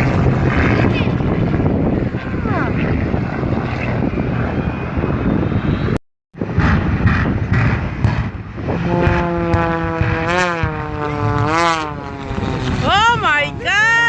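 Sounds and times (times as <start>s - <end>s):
airplane engine: 0.0s - 14.0s
engine tone swinging in pitch: 2.0s - 7.0s.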